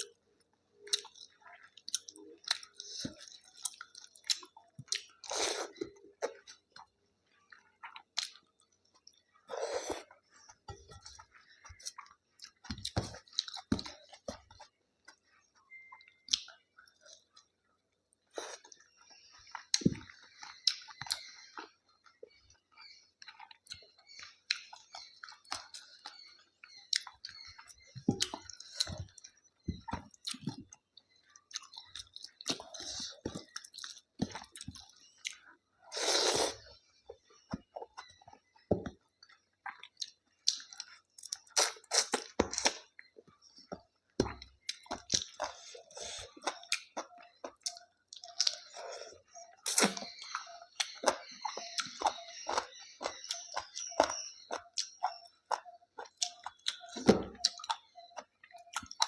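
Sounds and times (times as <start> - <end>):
close-up chewing: 0.8 - 59.0.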